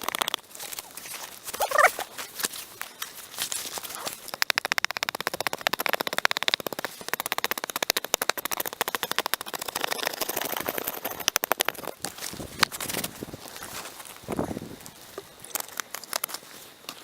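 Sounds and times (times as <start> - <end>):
scraping charred wood: 0.0 - 4.6.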